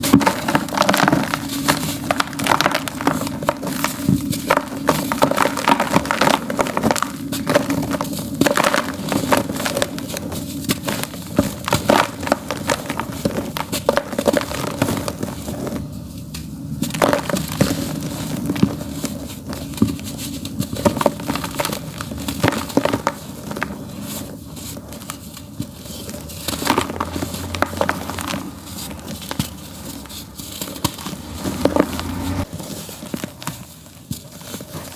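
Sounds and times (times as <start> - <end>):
dirt crumbling gritty crunches: 16.7 - 34.9.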